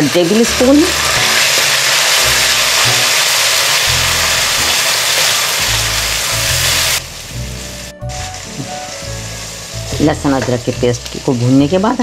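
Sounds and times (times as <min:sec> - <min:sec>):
onions sizzling in hot oil: 0:00.0 - 0:12.0
background music with bass: 0:03.9 - 0:05.0, 0:05.6 - 0:12.0.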